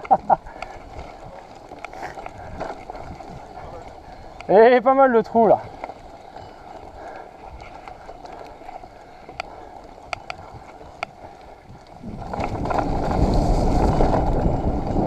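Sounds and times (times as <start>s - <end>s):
wind on microphone: 0.1s - 4.5s, 8.8s - 15.0s
bike clicks and knocks: 5.6s - 15.0s.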